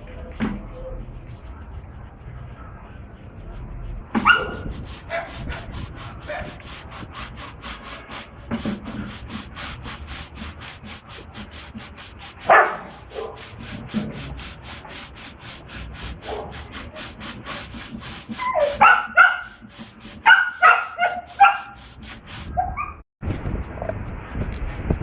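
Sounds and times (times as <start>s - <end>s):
dog barking: 4.2s - 5.4s, 12.5s - 13.4s, 16.2s - 16.5s, 18.5s - 19.6s, 20.2s - 21.8s
steady rushing noise: 23.2s - 25.0s.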